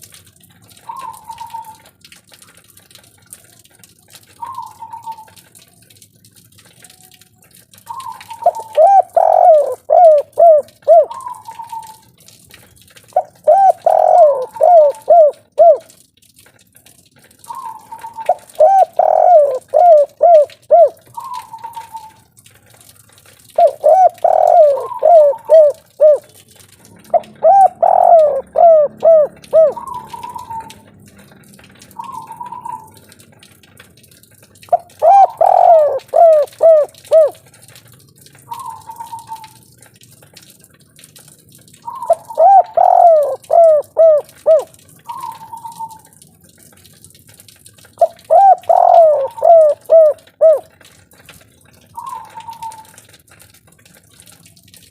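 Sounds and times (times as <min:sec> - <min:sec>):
dove cooing: 0:00.8 - 0:01.9, 0:04.4 - 0:05.4, 0:07.9 - 0:12.0, 0:13.2 - 0:15.9, 0:17.5 - 0:22.2, 0:23.6 - 0:33.0, 0:34.7 - 0:37.4, 0:38.5 - 0:39.6, 0:41.8 - 0:46.1, 0:48.0 - 0:50.8, 0:52.0 - 0:53.0.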